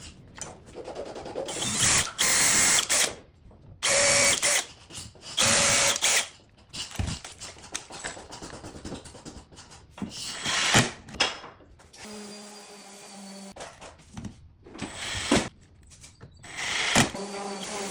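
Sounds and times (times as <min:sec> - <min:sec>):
power drill whining: 0:01.5 - 0:03.1, 0:03.8 - 0:04.7, 0:05.4 - 0:06.3, 0:14.8 - 0:15.5, 0:16.5 - 0:17.9.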